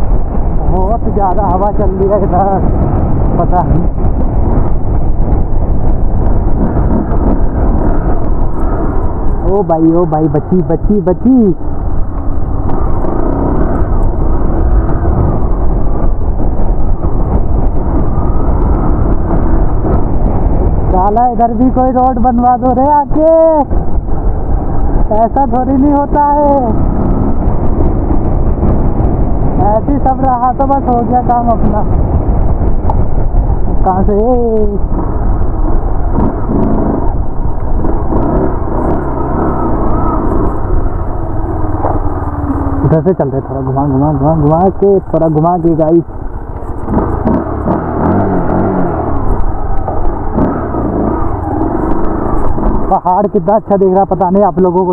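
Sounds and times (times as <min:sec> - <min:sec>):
motorcycle engine: 0:00.0 - 0:54.9
wind rumble on microphone: 0:00.0 - 0:54.9.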